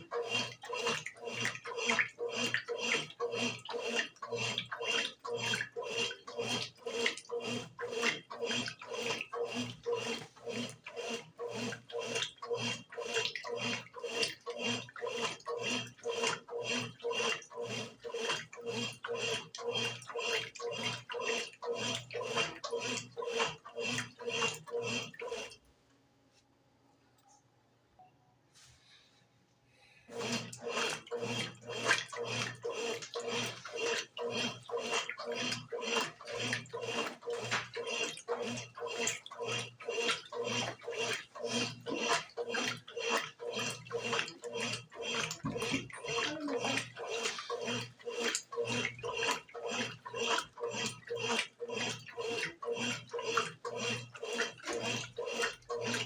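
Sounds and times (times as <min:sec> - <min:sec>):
washing machine swishing clothes: 0:30.1 - 0:56.0.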